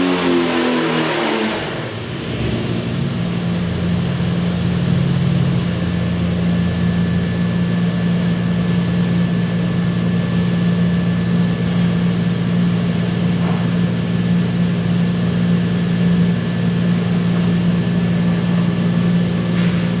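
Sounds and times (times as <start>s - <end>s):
engine running on a dyno: 0.0s - 20.0s.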